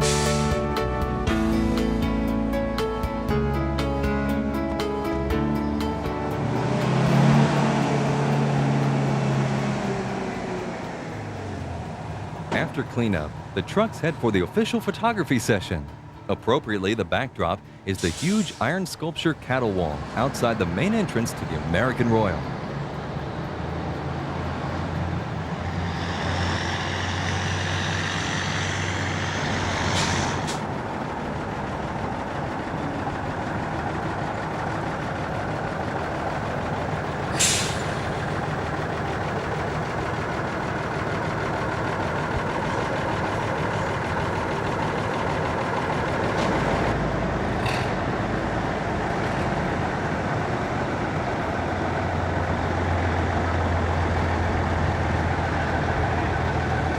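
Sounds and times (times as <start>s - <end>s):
air brakes hissing: 0.0s - 0.6s, 17.8s - 18.9s, 25.5s - 30.7s, 37.2s - 38.6s
truck engines running: 0.0s - 56.9s.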